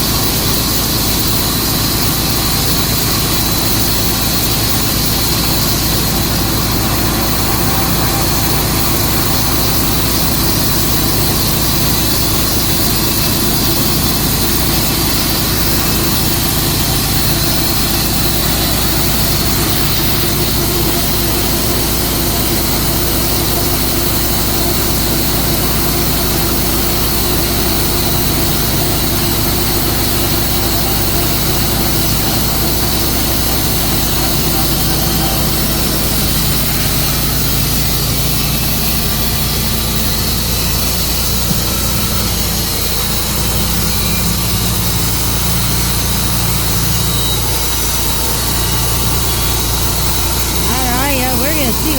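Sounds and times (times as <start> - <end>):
sawmill engine running: 0.0 - 51.9.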